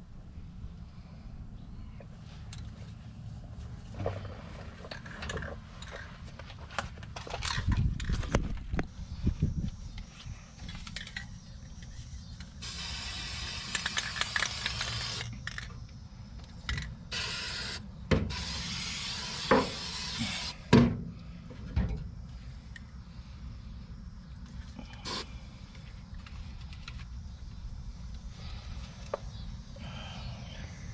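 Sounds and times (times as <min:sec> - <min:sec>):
spray can being handled: 0:12.6 - 0:15.3
spray can hissing: 0:12.6 - 0:15.3, 0:17.1 - 0:20.6.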